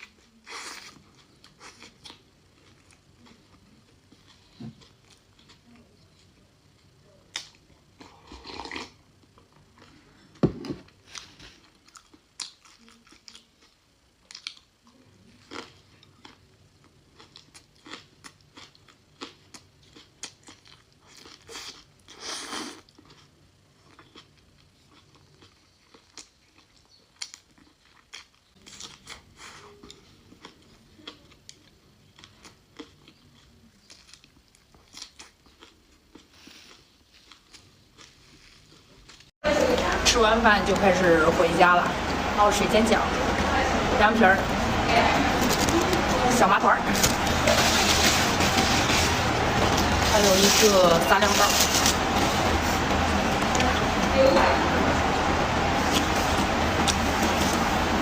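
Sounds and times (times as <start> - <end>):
chewing and biting noodles: 17.1 - 39.3.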